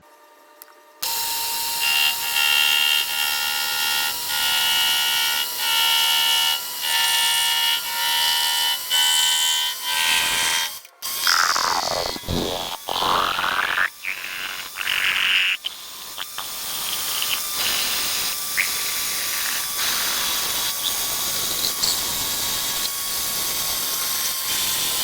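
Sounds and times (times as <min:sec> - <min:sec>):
machine tool cutting metal: 0:01.0 - 0:25.0
whine sweeping down in pitch: 0:11.2 - 0:15.0.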